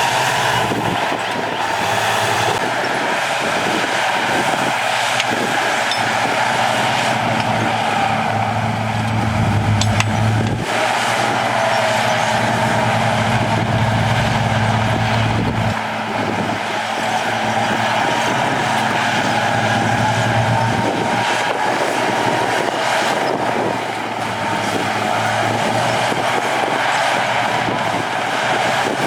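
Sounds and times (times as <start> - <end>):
high whine: 0.0 - 28.3
diesel machinery engine: 0.0 - 29.0.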